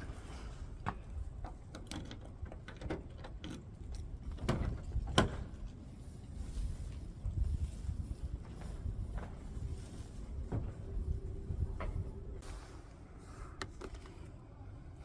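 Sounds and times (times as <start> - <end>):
low rumbling background: 3.2 - 15.0.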